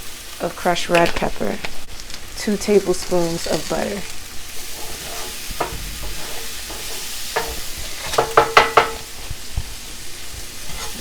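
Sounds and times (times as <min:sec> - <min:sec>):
food sizzling in a skillet: 0:00.0 - 0:11.0
utensil knocking against pan: 0:05.6 - 0:09.1.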